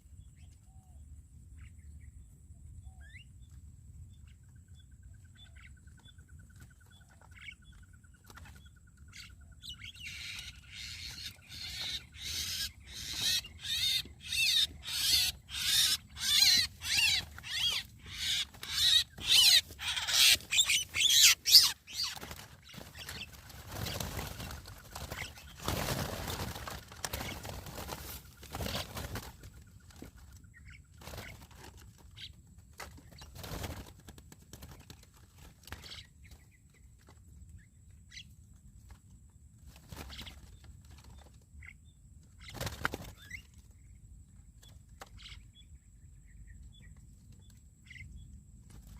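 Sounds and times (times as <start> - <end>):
myna harsh calls: 10.8 - 22.2.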